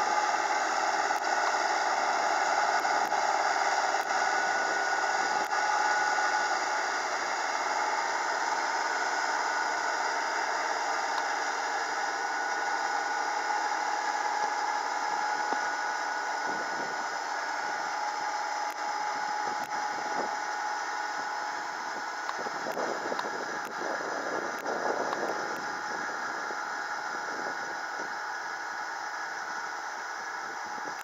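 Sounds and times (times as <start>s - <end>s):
held whining tones: 0.0s - 31.0s
tractor diesel engine droning: 0.0s - 31.0s.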